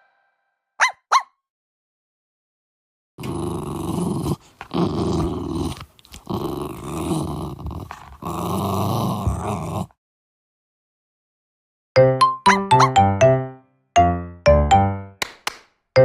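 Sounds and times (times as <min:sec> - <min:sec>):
puppy growling: 0:03.2 - 0:10.0.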